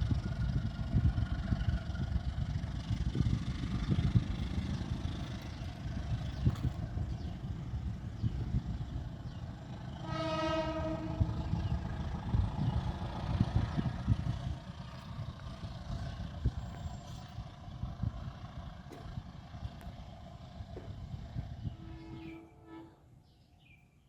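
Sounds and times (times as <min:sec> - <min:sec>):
steady low rumble: 0:00.0 - 0:10.1, 0:10.8 - 0:22.4
locomotive horn blast: 0:10.0 - 0:11.6, 0:21.6 - 0:23.2.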